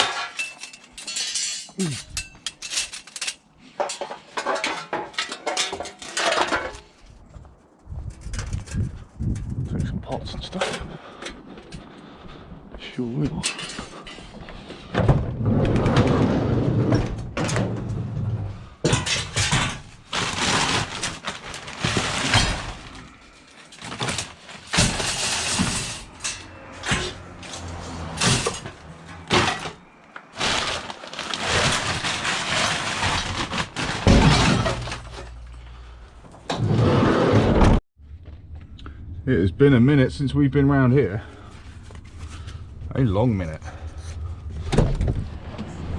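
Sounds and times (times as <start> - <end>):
scrap metal clattering and clanking: 0.0 - 7.2, 13.4 - 37.6.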